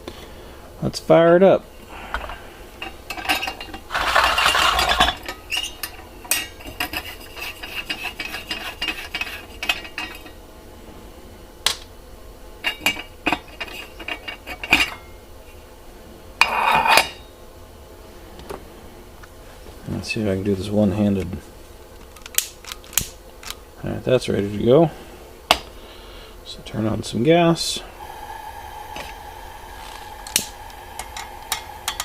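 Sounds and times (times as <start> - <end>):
scraping rubs: 2.3 - 5.8, 6.6 - 10.0.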